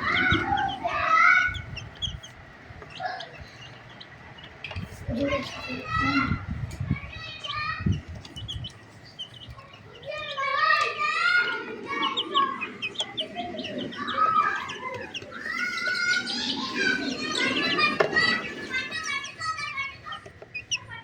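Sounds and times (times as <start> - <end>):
chicks cheeping: 0.0 - 21.0.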